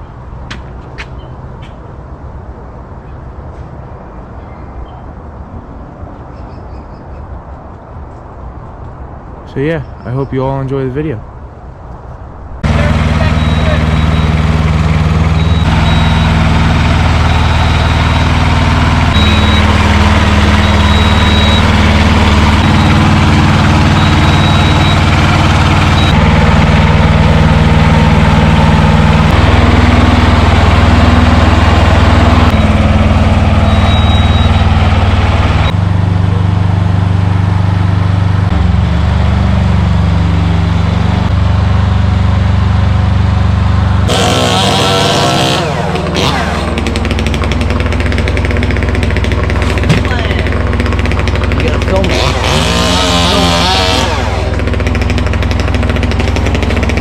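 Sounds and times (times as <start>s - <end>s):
large engine running: 12.6s - 57.0s.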